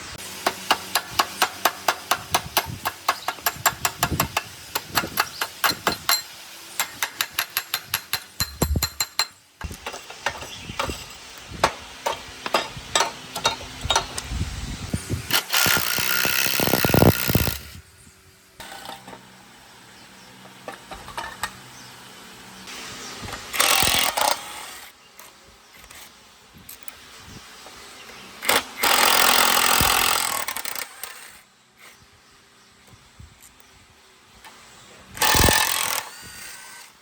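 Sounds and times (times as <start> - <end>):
power tool running: 13.3 - 17.8, 21.4 - 24.9, 28.4 - 31.4, 35.2 - 37.0.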